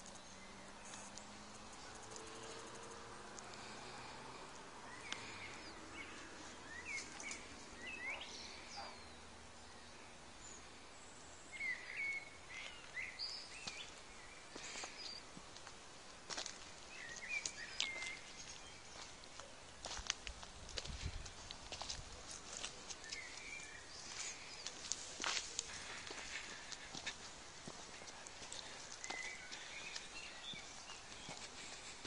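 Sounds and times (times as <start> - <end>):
songbird chirps: 0.0 - 32.0.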